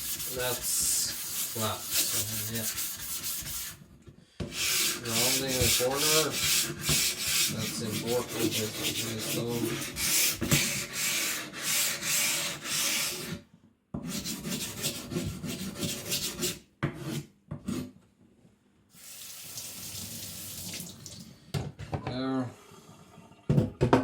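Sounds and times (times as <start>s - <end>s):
stone rubbing on abrasive: 0.0s - 3.8s, 4.5s - 13.4s.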